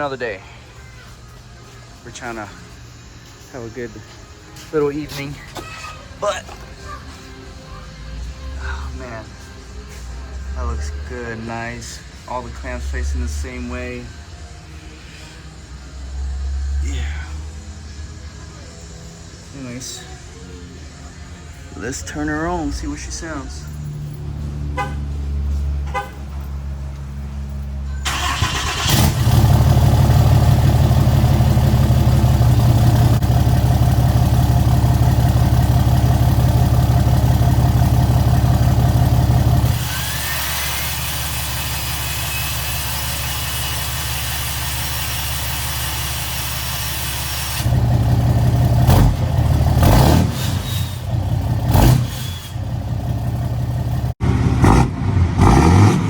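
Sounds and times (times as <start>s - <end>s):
diesel engine starting and idling: 0.0s - 56.0s
engine revving: 28.1s - 42.5s, 47.5s - 52.9s, 54.0s - 56.0s.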